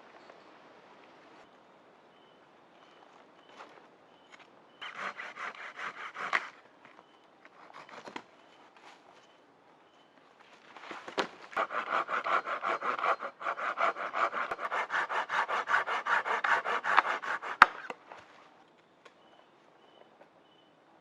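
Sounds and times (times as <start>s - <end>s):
hand saw cutting wood: 4.8s - 6.6s, 11.6s - 18.0s.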